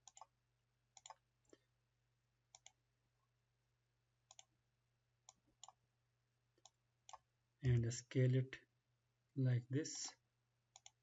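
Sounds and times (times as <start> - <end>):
mouse and keyboard clicks: 0.0 - 0.3, 1.0 - 1.2, 2.5 - 2.8, 4.3 - 4.5, 5.3 - 5.8, 10.7 - 11.0.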